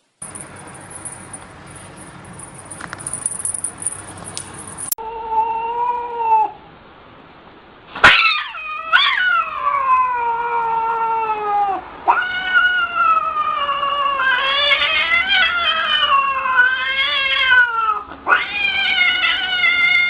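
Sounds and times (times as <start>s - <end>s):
cat yowling: 5.0s - 6.6s, 8.0s - 20.0s.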